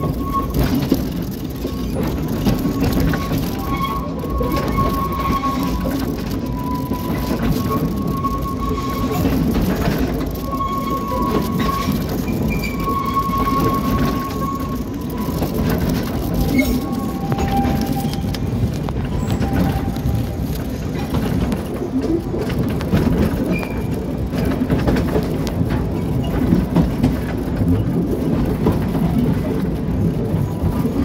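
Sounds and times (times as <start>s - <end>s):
train wheels rumbling on rails: 0.0s - 31.0s
wheels squealing on curves: 2.6s - 20.6s.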